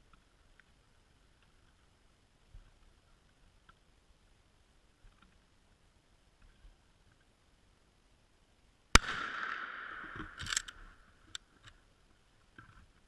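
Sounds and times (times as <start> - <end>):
gunshot with echo: 9.0 - 10.6.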